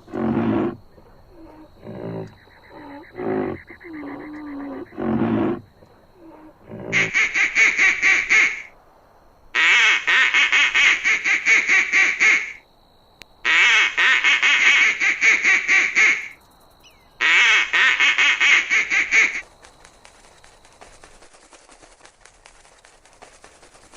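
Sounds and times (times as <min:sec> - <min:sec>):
animal calling harsh notes: 0:06.2 - 0:08.7.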